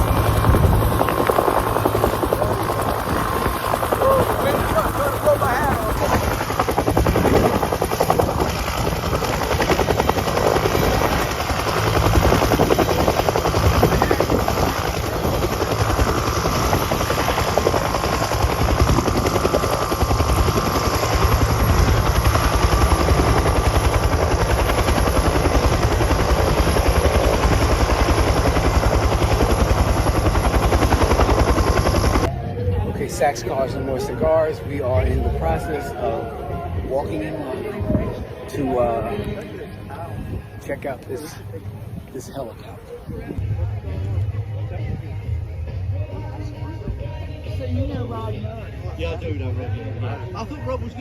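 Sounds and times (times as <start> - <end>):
helicopter rotor chop: 0.0 - 39.4.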